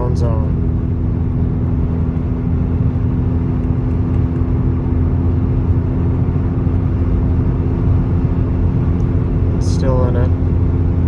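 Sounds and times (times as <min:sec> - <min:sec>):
exhaust drone inside car: 0:00.0 - 0:11.0
road rumble: 0:00.0 - 0:11.0.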